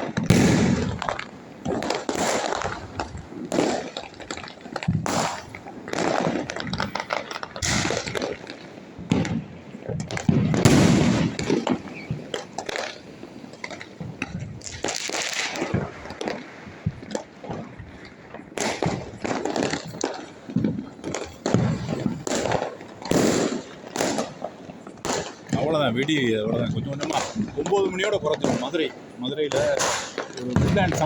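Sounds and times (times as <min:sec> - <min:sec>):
firecrackers and fireworks bangs: 0:00.0 - 0:31.0
loud firework boom: 0:00.2 - 0:01.1, 0:10.2 - 0:12.3, 0:29.5 - 0:31.0.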